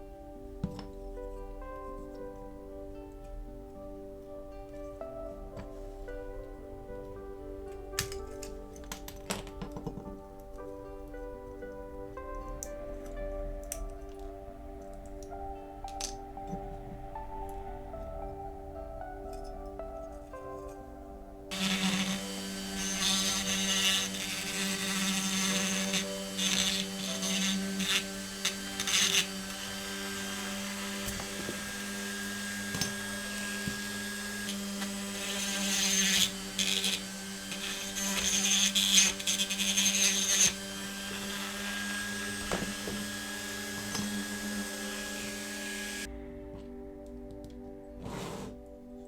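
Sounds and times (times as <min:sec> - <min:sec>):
electric drill grinding metal: 0:21.5 - 0:46.1.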